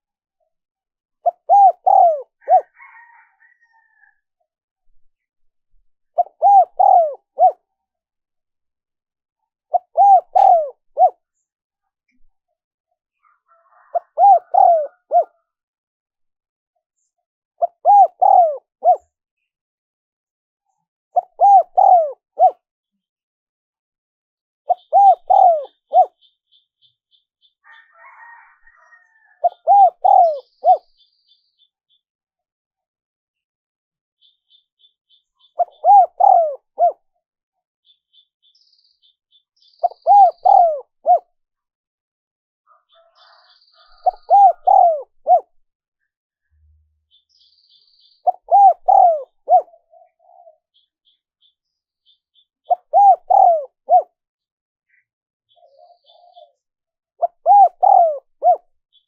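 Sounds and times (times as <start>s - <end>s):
dove cooing: 1.2s - 4.0s, 6.2s - 7.7s, 9.7s - 11.2s, 13.7s - 15.5s, 17.6s - 19.1s, 21.2s - 22.6s, 24.7s - 26.2s, 27.7s - 30.9s, 35.5s - 37.0s, 39.8s - 41.3s, 42.7s - 45.6s, 48.2s - 50.7s, 52.6s - 54.2s, 55.6s - 56.6s, 57.2s - 58.7s
small bird chirping: 24.7s - 32.0s, 34.2s - 37.0s, 37.8s - 41.2s, 42.7s - 45.4s, 46.0s - 54.1s, 54.9s - 59.0s.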